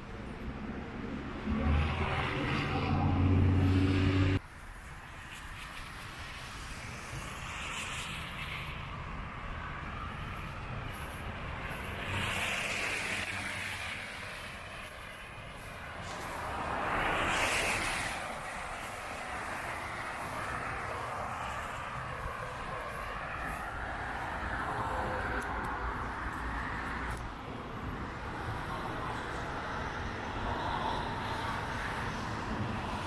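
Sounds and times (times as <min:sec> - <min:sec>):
vehicle engine humming: 0:00.0 - 0:04.4, 0:09.0 - 0:29.9.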